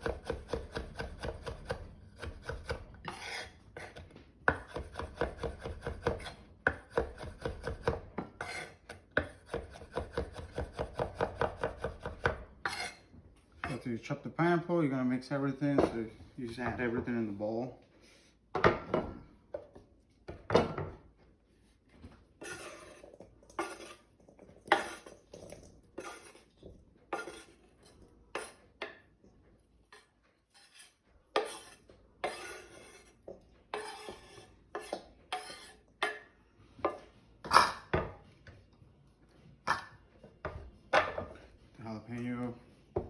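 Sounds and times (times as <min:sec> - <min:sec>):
utensil scraping and clinking bowl: 0:03.0 - 0:06.5, 0:08.3 - 0:09.9, 0:12.6 - 0:13.1, 0:22.4 - 0:28.9, 0:29.9 - 0:38.0.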